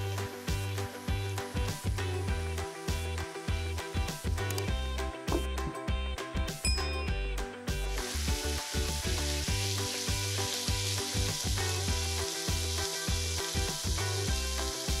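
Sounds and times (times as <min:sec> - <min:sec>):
food sizzling in frying pan: 0:00.0 - 0:06.5, 0:07.1 - 0:15.0
background music with bass: 0:00.0 - 0:15.0.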